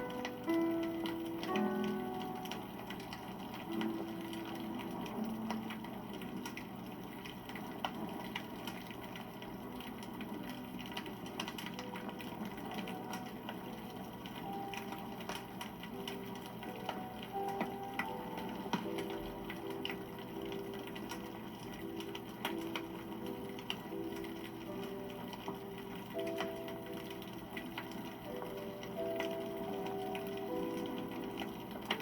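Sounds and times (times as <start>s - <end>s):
campfire crackling and popping: 0.0s - 32.0s
flame hissing: 0.0s - 32.0s.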